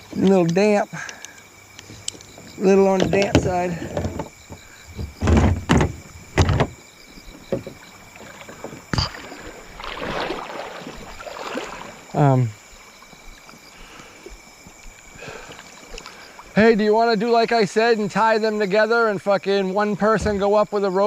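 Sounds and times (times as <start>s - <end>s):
kayak knocking against rocks: 1.8s - 12.1s.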